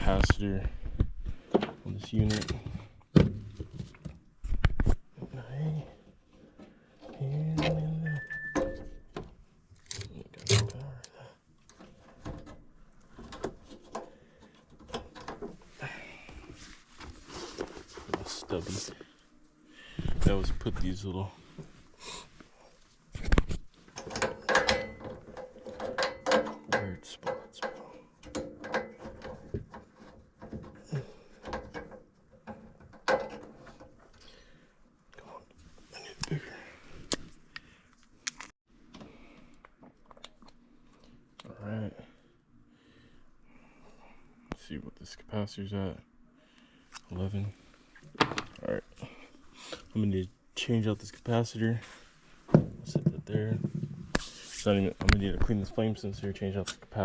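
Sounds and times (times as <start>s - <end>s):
steady high tone: 7.9s - 8.8s
tools and metal parts clicking: 24.0s - 29.4s.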